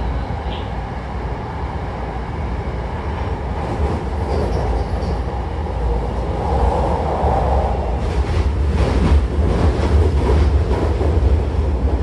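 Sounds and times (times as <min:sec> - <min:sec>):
train wheels rumbling: 0:03.0 - 0:12.0.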